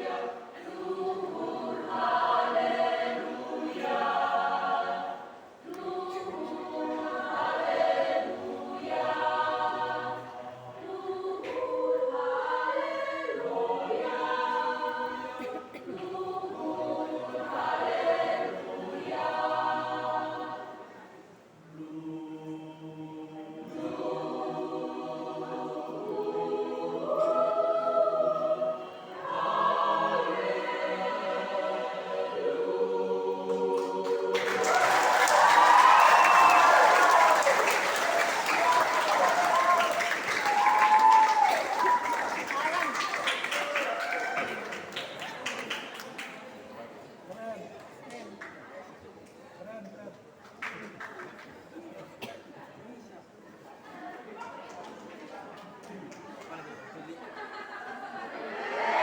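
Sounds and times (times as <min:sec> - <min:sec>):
church choir singing: 0:00.0 - 0:43.7, 0:57.3 - 0:59.0.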